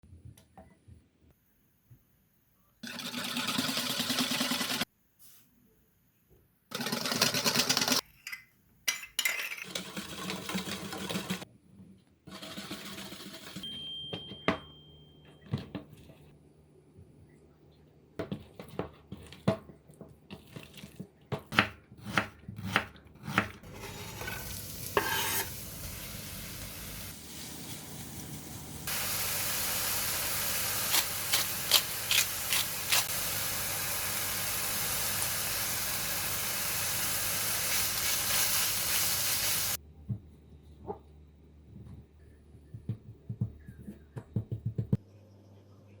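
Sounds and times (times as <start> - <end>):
pies sizzling in frying oil: 23.7 - 39.8
oil crackling: 24.4 - 39.8
sharp taps and knocks: 42.7 - 45.0.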